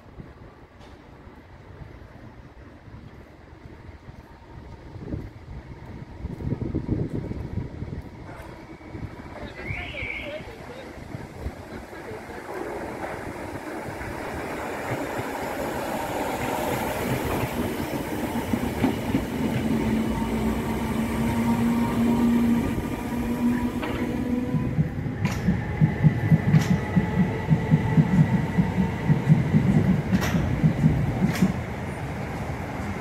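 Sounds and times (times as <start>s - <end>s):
electric train hum: 0.0s - 33.0s
wheels clicking over rail joints: 23.7s - 32.5s.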